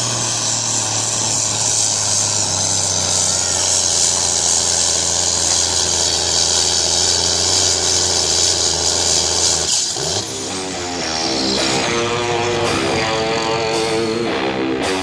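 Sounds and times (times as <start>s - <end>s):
tractor engine running: 0.0s - 15.0s
electric guitar music: 10.0s - 15.0s.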